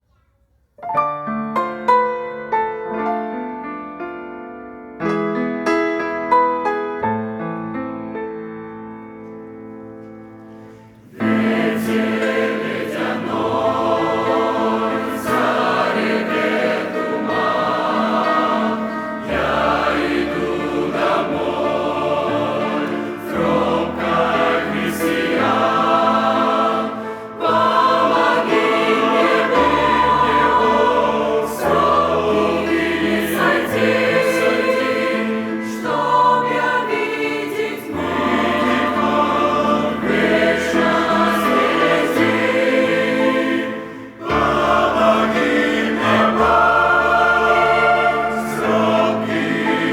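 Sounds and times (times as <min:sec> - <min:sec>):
choir singing a hymn: 0:10.3 - 0:49.9.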